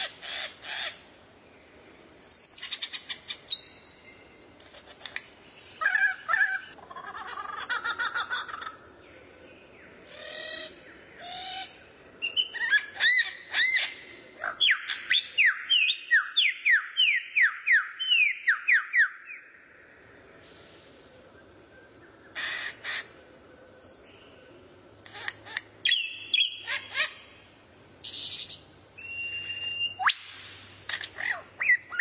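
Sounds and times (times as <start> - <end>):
bird harsh rasps: 22.4 - 23.1
songbird whistling: 25.8 - 26.8, 29.0 - 30.4.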